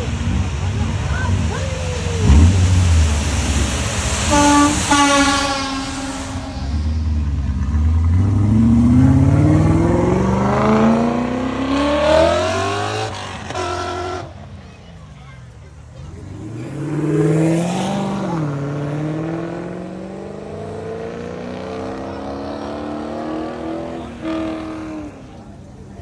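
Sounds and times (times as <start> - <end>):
car engine accelerating: 0.0 - 26.0
car horn: 4.2 - 7.4.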